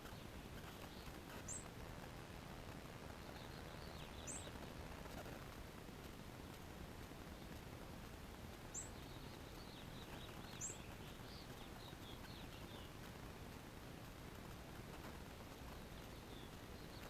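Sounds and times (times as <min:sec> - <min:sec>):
songbird chirping and twittering: 0:00.0 - 0:01.8, 0:03.1 - 0:05.4, 0:08.5 - 0:13.2, 0:14.7 - 0:17.0.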